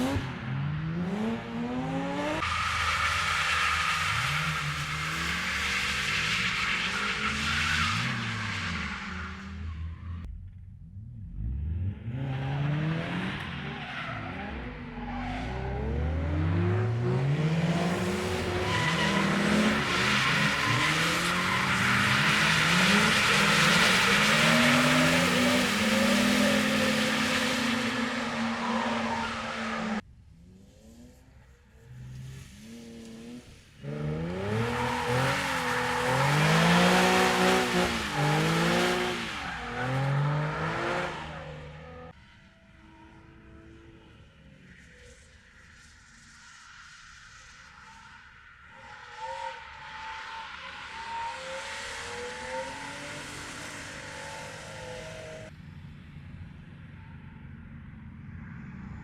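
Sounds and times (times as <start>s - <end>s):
car engines revving hard: 0.0s - 9.9s, 10.9s - 42.1s.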